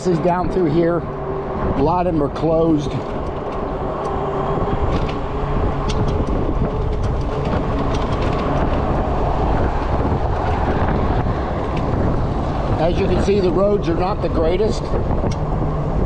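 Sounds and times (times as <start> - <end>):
wind rushing over microphone: 0.0 - 16.0
tyre rumble on rough pavement: 1.6 - 16.0
small clicks and rattles: 4.9 - 12.2.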